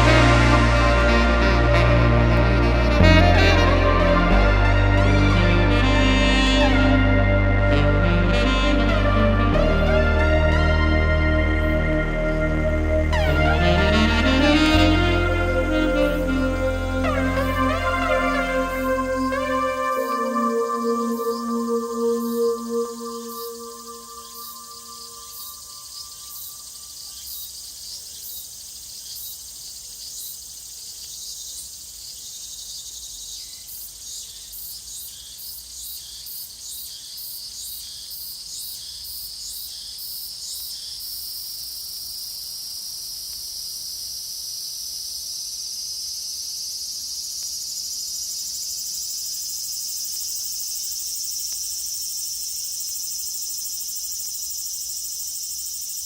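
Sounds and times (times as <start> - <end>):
cicadas singing: 13.1 - 56.0.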